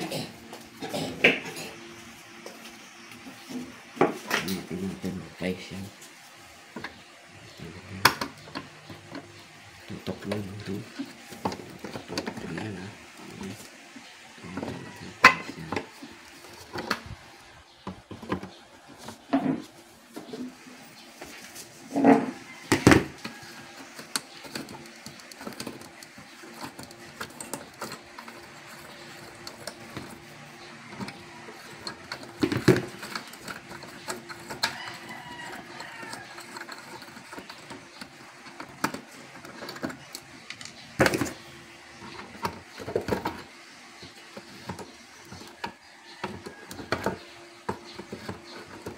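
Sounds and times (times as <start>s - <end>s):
tools and parts clicking and knocking: 14.6s - 15.9s, 22.1s - 48.9s.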